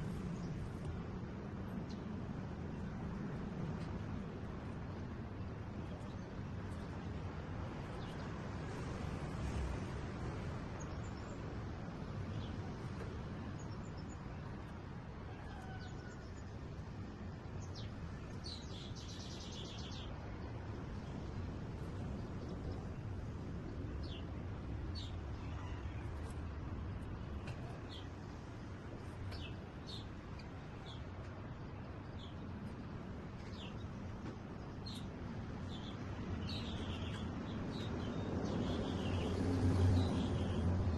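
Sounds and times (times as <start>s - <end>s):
birds chirping: 27.1s - 40.7s.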